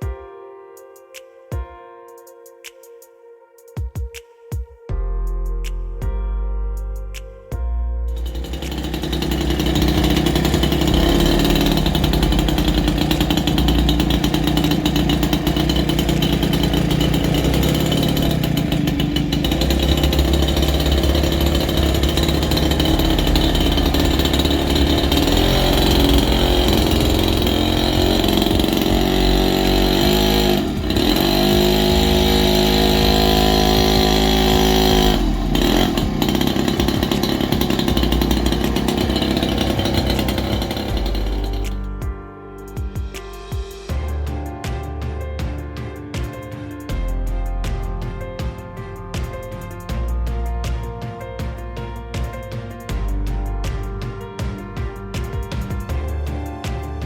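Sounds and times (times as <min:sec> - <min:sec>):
mini bike engine running: 0:08.2 - 0:41.9.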